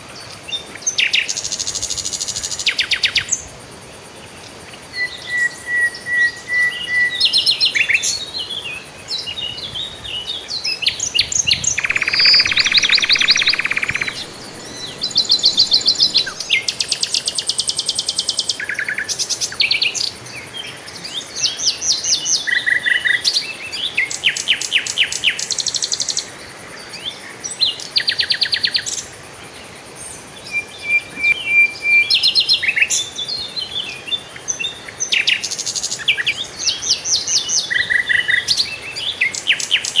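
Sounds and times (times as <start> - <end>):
songbirds singing and chirping: 9.2 - 17.1.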